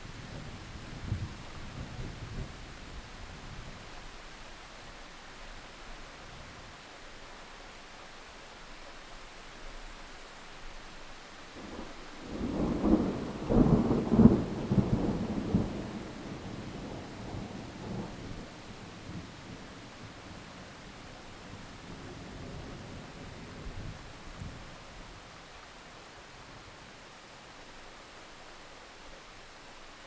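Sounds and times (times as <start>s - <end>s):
steady rain falling: 0.0s - 30.0s
thunder rumbling and cracking: 11.7s - 19.3s.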